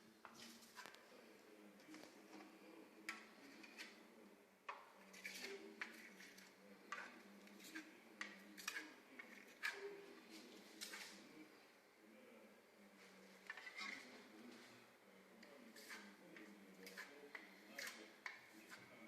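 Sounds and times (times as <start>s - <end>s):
tool tapping and scraping on wall: 1.8s - 11.4s, 15.4s - 19.0s.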